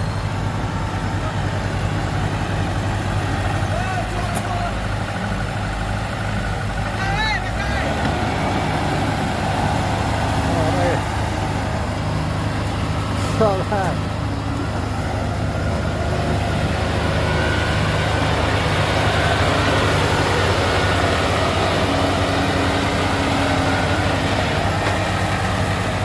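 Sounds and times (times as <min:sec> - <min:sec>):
heavy diesel engine running: 0:00.0 - 0:26.0.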